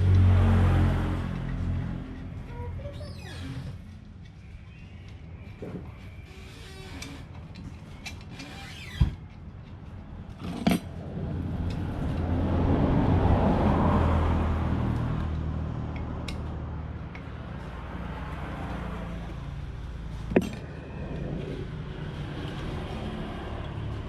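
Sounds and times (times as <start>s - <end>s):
vehicle engine passing by: 0.0s - 3.8s, 11.0s - 24.0s.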